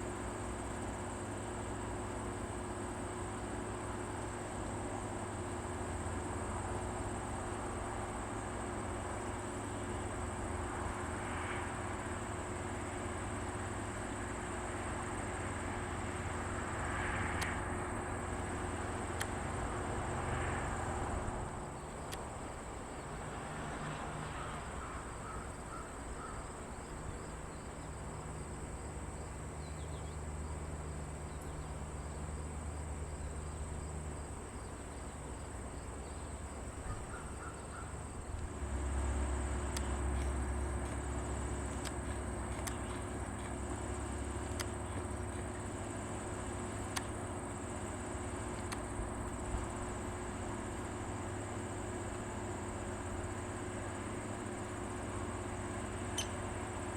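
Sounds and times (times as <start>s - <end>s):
insects trilling: 0.0s - 56.9s
low steady hum: 24.6s - 56.9s
quick chirps: 39.6s - 49.7s.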